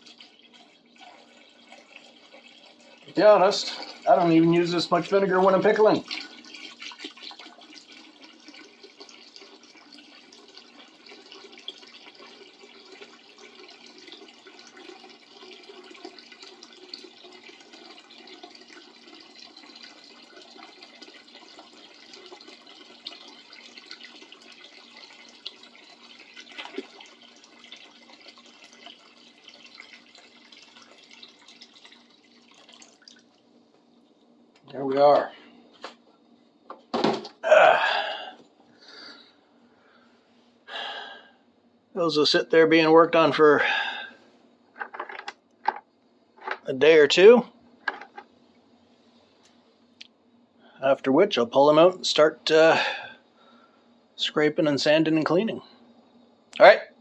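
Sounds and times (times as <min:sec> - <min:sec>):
liquid pouring into bucket: 0:00.0 - 0:35.3.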